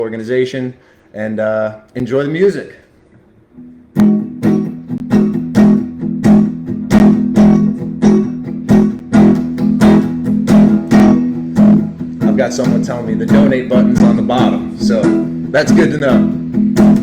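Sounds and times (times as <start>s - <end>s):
acoustic guitar strumming: 3.6s - 17.0s.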